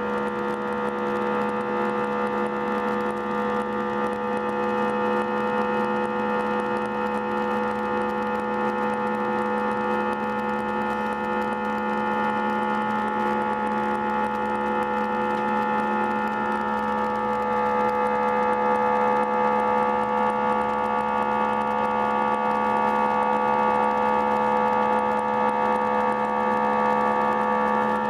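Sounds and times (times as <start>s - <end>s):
jet engines droning: 8.9s - 21.7s.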